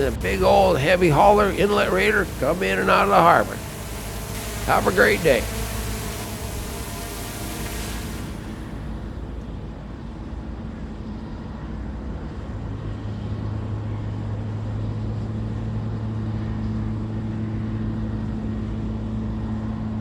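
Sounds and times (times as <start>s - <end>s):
engine humming: 0.0s - 9.6s.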